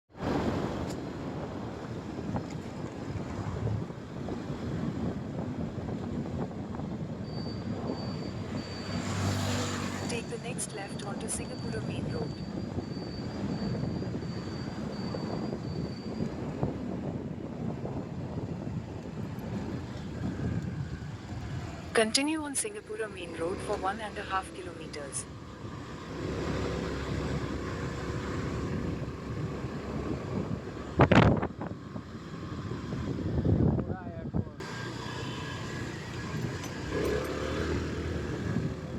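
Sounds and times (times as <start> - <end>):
wind rushing over microphone: 0.1 - 22.5, 23.3 - 38.9
motorcycle engine hum: 0.3 - 38.9.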